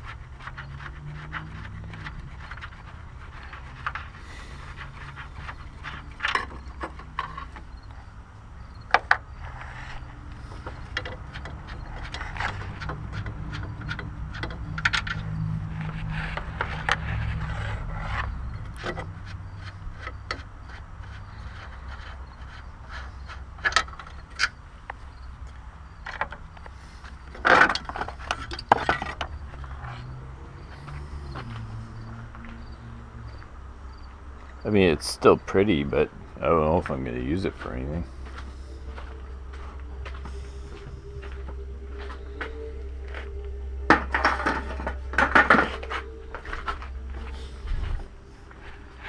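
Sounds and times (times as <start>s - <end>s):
metal scraping: 0.0s - 49.0s
steady low hum: 0.0s - 49.0s
metal tool clicks and knocks: 10.6s - 15.4s.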